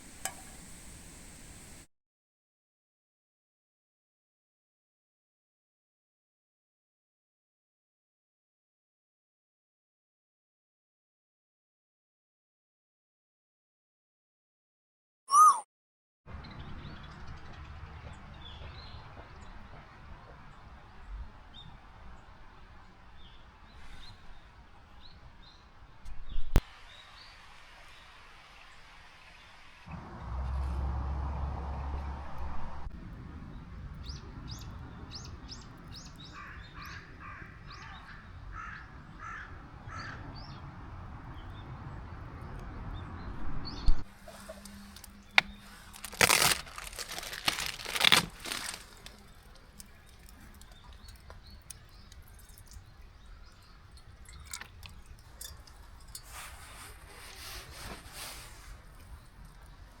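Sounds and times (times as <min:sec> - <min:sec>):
high bird chirps: 0:15.3 - 0:15.6.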